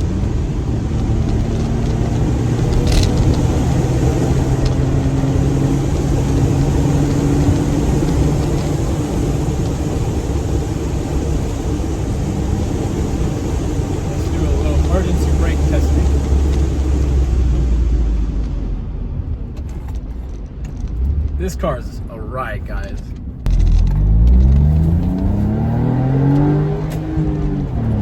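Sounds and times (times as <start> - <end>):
car engine running: 0.0 - 28.0
road noise: 0.0 - 28.0.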